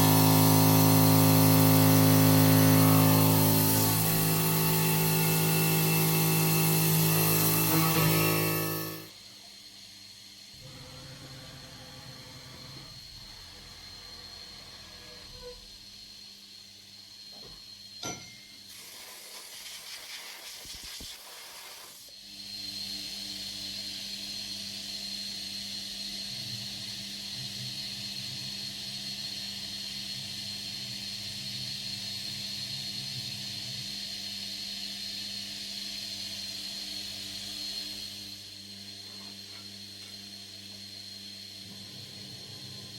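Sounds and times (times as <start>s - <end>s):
milling machine running: 0.0s - 9.2s.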